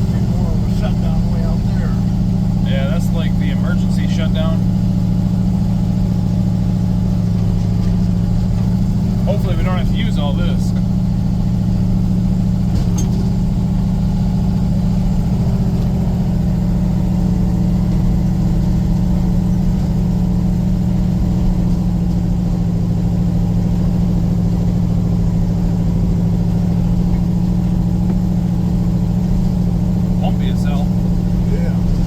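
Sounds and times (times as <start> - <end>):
vehicle engine running steadily: 0.0 - 32.0.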